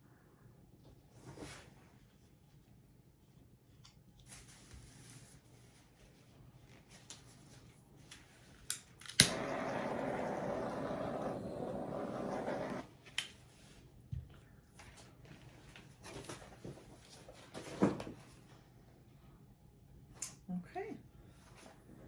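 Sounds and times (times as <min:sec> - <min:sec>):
electric air blower running: 0:09.2 - 0:12.8.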